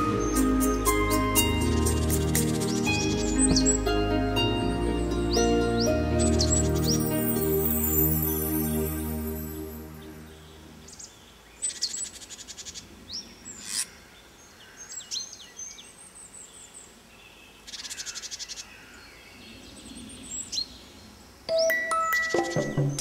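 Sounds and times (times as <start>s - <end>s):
background music: 0.0s - 11.0s, 21.5s - 23.0s
songbirds chirping: 0.0s - 23.0s
fast rattling bird trills: 13.5s - 14.1s.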